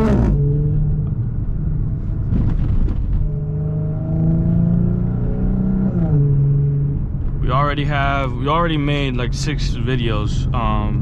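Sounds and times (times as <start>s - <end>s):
car engine revving: 0.0s - 1.2s, 2.3s - 7.2s.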